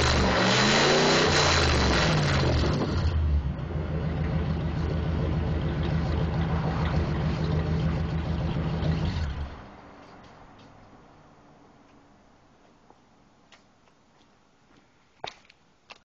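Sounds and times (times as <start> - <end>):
car engine revving and idling: 0.0 - 9.9.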